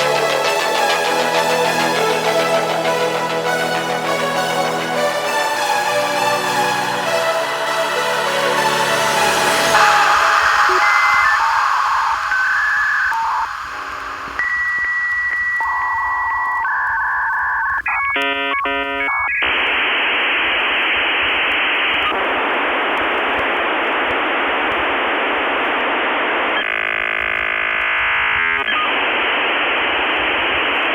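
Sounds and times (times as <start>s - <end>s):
modem steady tone: 0.0s - 4.8s, 7.5s - 30.9s
rapidly shifting modem tones: 0.0s - 30.9s
touch-tone dialling: 9.8s - 19.5s.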